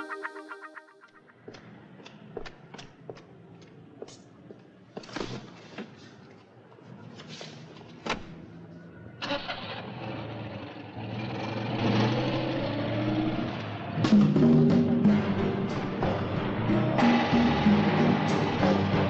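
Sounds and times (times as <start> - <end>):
car engine starting and running: 9.2 - 19.0.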